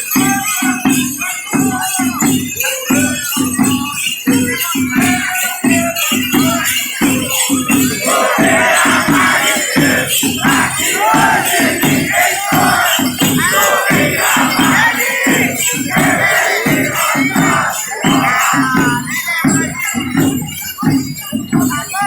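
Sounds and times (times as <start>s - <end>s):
drums beating: 0.0s - 22.0s
people singing and calling out: 0.0s - 22.0s
rattles and jingling shakers: 0.0s - 22.0s.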